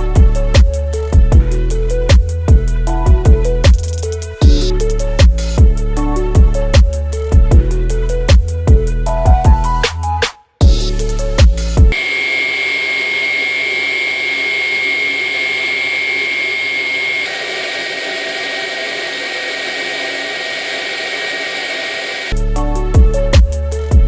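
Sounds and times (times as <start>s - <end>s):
stick vacuum motor whine: 11.9s - 22.4s.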